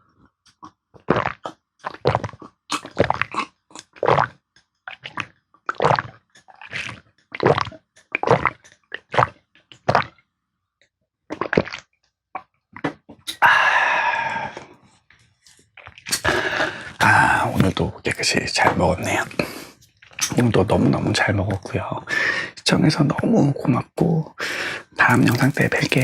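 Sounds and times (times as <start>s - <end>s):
person chewing and swallowing: 0.0s - 10.3s, 11.3s - 18.0s, 24.4s - 26.0s.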